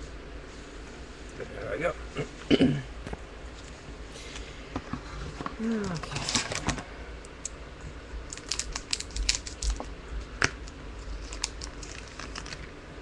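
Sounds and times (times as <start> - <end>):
cards clicking while shuffled: 8.3 - 9.9
pack wrapper crinkling: 8.3 - 9.9, 10.6 - 12.8.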